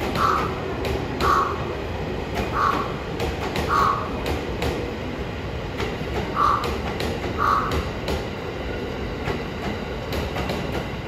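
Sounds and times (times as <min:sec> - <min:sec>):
electric train rumbling: 0:00.0 - 0:11.0
wheels clicking over rail joints: 0:05.6 - 0:08.4.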